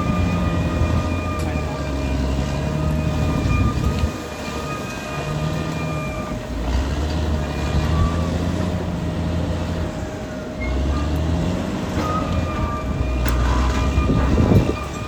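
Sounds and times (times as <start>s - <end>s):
bulldozer diesel engine drone: 0.0s - 15.0s.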